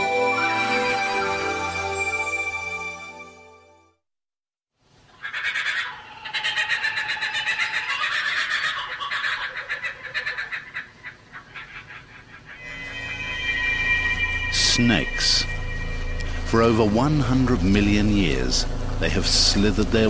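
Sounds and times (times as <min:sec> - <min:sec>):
music: 0:00.0 - 0:04.0, 0:12.6 - 0:20.0
birds chattering: 0:05.2 - 0:12.7.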